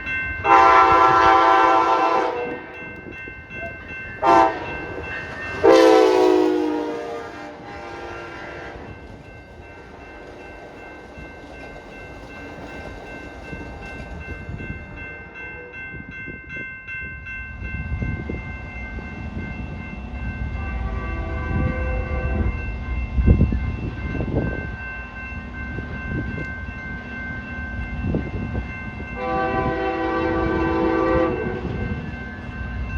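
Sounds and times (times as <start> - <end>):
train rumble: 0.0 - 32.9
train horn: 0.4 - 2.8, 4.2 - 4.8, 5.6 - 9.0, 20.6 - 22.5, 29.2 - 31.9.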